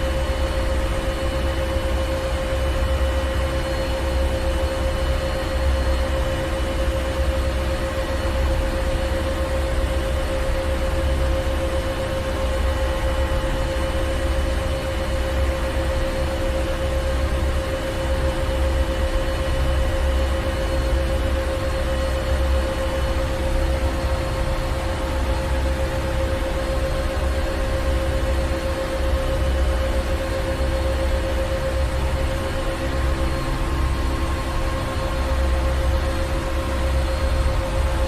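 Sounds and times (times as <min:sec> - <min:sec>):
engine room machinery rumbling: 0:17.8 - 0:38.0.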